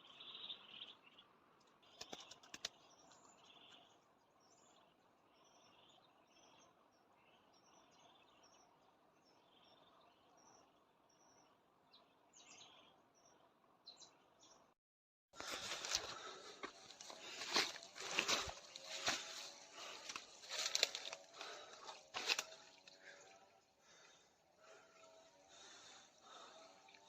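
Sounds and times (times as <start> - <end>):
small birds chirping: 0.0 - 14.8, 15.4 - 27.0.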